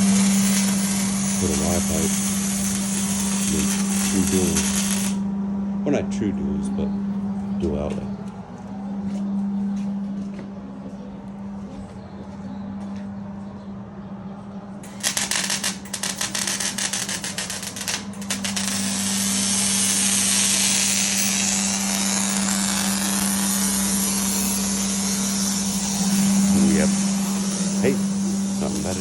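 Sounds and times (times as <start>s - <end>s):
high-pitched power tool grinding: 0.0s - 5.2s, 14.8s - 29.0s
constant low hum: 0.0s - 29.0s.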